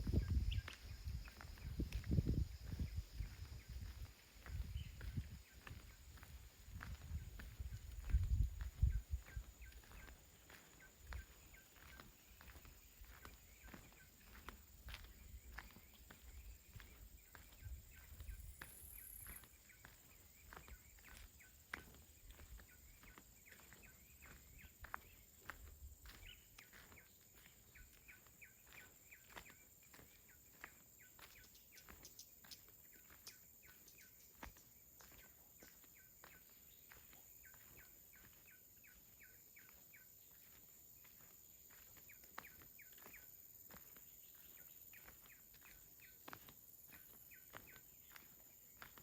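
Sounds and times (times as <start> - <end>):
low wind rumble: 0.0 - 5.5, 6.6 - 9.5.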